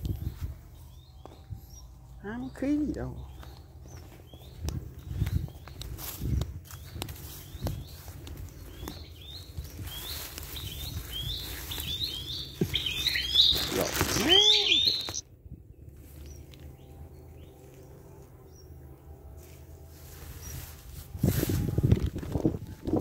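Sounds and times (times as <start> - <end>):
footsteps rustling through grass: 0.0 - 15.2, 18.9 - 23.0
small bird chirping: 0.0 - 15.2.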